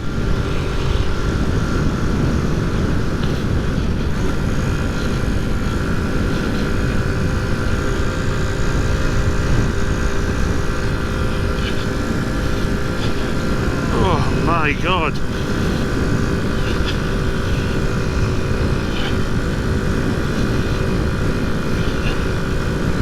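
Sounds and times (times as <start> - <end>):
wind rumble on microphone: 0.0 - 13.9.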